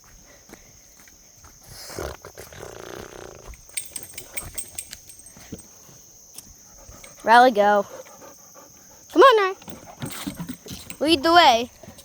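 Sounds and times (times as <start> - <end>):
insects droning: 0.0 - 12.0
dog breathing heavily: 3.7 - 12.0.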